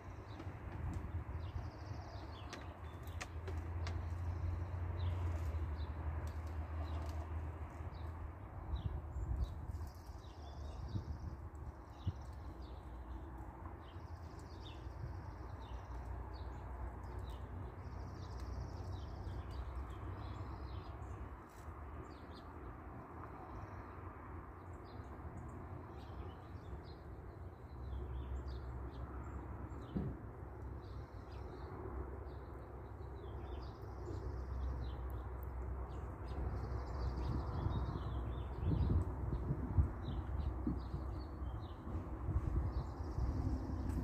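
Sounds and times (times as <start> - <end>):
small birds chirping: 0.0 - 44.0
thump: 29.9 - 30.2.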